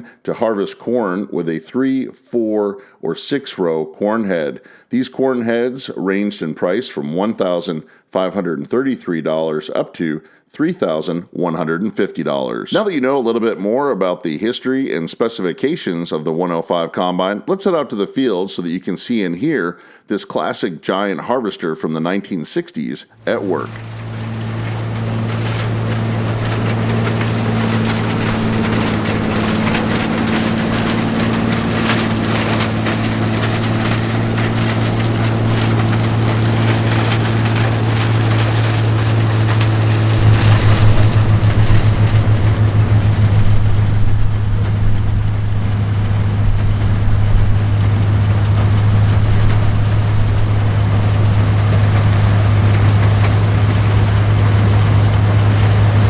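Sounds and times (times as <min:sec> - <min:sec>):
threshing machinery hiss: 0:23.2 - 0:53.8
combine engine hum: 0:23.2 - 0:56.0.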